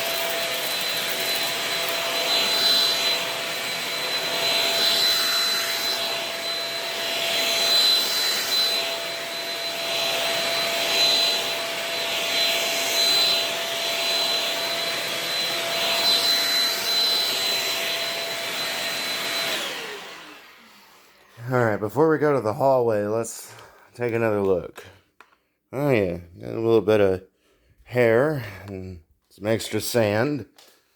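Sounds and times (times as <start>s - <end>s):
vacuum cleaner running: 0.0s - 21.7s.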